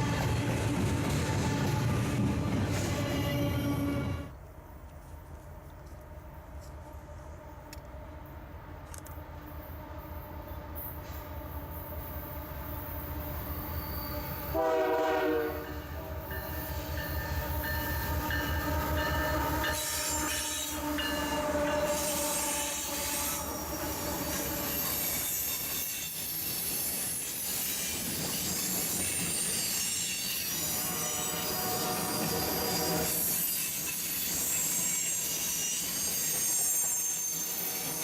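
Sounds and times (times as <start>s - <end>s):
wheels squealing on rails: 0.0s - 4.4s, 9.1s - 38.0s
train horn blast: 14.5s - 16.2s, 19.3s - 23.8s, 30.6s - 33.2s.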